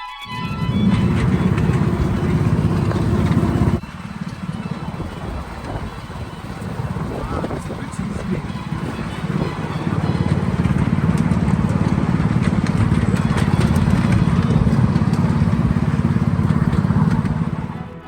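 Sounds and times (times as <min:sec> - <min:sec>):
miniature diesel train engine rumbling: 0:00.2 - 0:18.0
sharp clicks from train wheels: 0:00.5 - 0:18.0.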